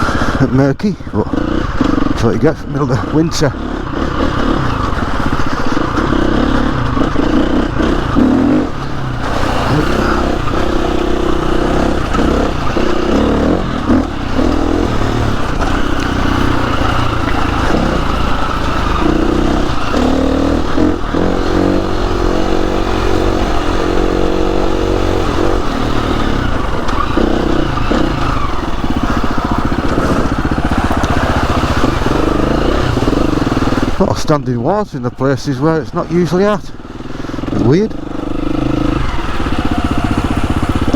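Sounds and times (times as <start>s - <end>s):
motorbike engine revving: 0.0s - 40.9s.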